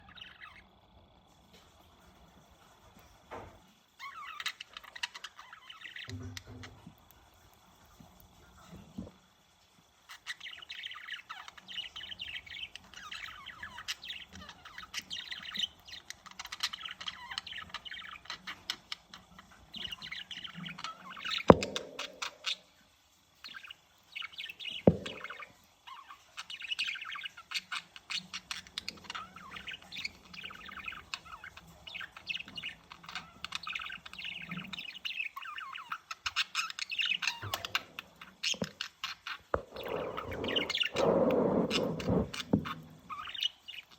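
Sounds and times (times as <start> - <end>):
sharp taps: 21.5 - 22.6, 24.8 - 25.4.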